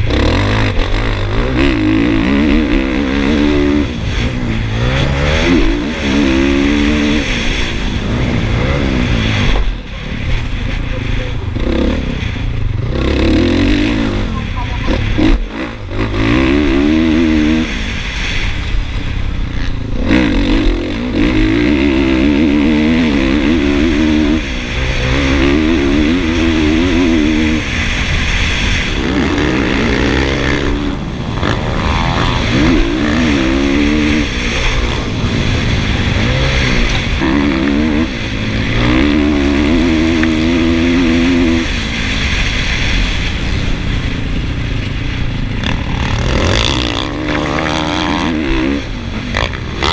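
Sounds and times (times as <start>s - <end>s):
motorcycle engine revving: 0.0s - 49.9s
rushing noise: 0.0s - 49.9s.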